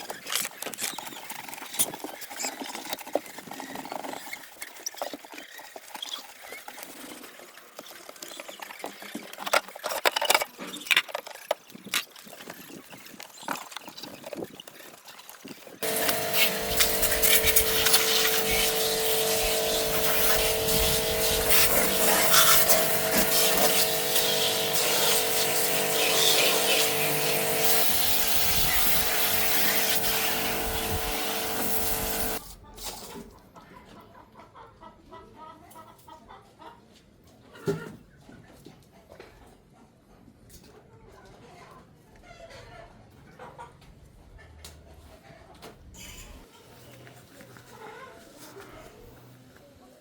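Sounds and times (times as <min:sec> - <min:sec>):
machine running with hiss and hum: 0:15.8 - 0:32.4.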